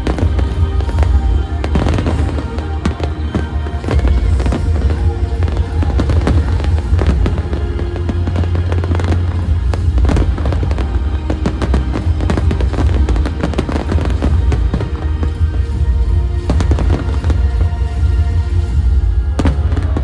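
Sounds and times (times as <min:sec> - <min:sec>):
fireworks bangs and crackles: 0:00.0 - 0:20.0
loud music: 0:00.0 - 0:20.0.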